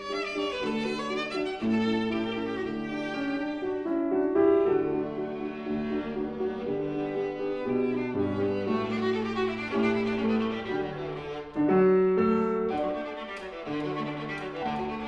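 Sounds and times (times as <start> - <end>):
piano accompaniment: 0.0 - 15.0
viola melody: 0.0 - 15.0.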